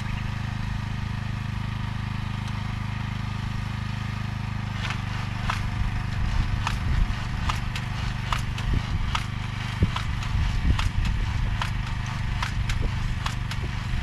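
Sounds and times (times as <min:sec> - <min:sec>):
machine engine running: 0:00.0 - 0:14.0
sharp mechanical clicks: 0:04.7 - 0:14.0.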